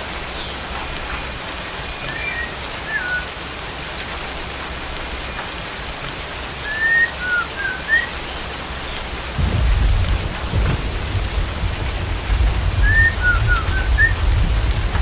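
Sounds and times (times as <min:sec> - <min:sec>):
steady rain: 0:00.0 - 0:15.0
bird whistling: 0:02.0 - 0:03.3, 0:06.6 - 0:08.2, 0:12.8 - 0:14.2
low rumble: 0:09.4 - 0:15.0.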